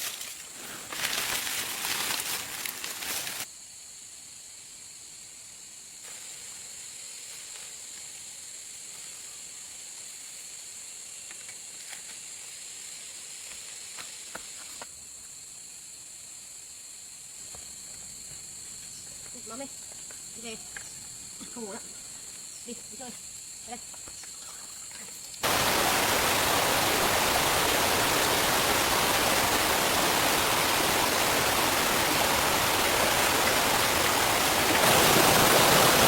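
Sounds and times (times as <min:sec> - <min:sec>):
loud rustle: 0:00.0 - 0:03.5
forest insects buzzing: 0:00.0 - 0:36.0.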